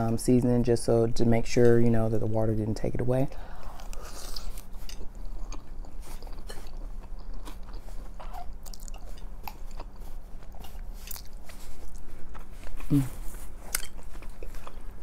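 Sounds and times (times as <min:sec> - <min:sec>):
wet chewing: 0:03.6 - 0:15.0.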